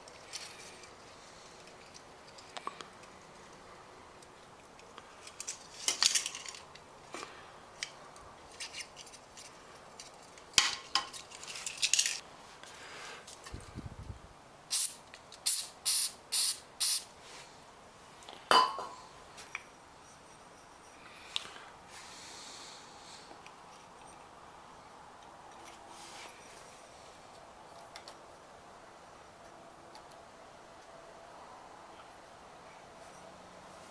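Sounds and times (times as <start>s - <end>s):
small metal parts clinking: 0.0s - 3.2s, 4.7s - 6.8s, 8.5s - 12.2s
short hissy bursts: 14.7s - 17.5s.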